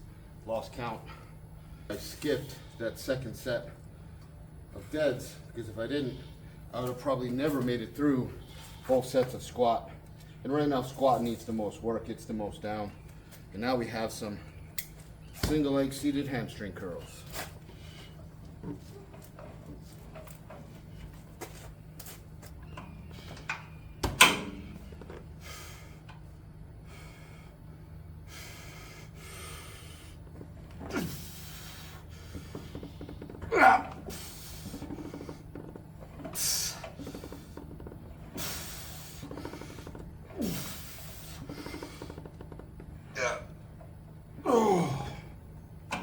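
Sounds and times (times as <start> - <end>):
steady low hum: 0.0 - 46.0
person breathing hard: 28.2 - 30.2.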